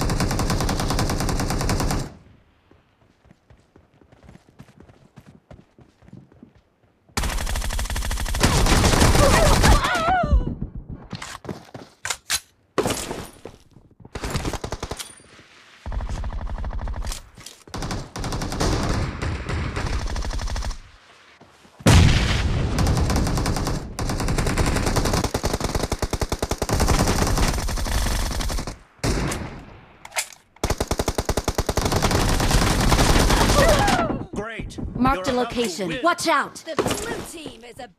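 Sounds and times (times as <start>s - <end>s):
video game automatic gunfire: 0.0s - 2.2s, 17.7s - 20.8s, 22.8s - 29.2s, 30.6s - 33.8s.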